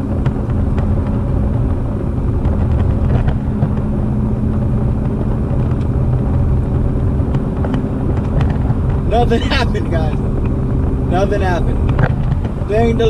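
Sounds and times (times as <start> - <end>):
car engine running: 0.0 - 13.0
road noise inside cabin: 0.0 - 13.0.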